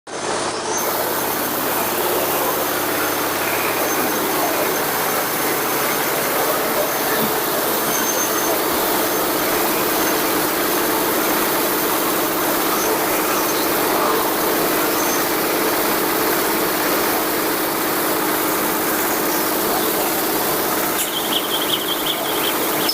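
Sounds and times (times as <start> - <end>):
baler diesel engine running: 0.1 - 22.9.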